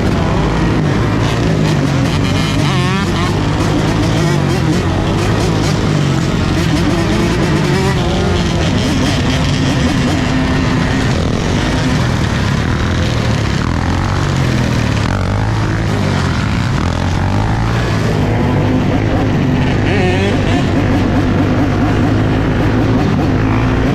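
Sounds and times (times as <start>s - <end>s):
dirt bike engines revving: 0.0s - 23.9s.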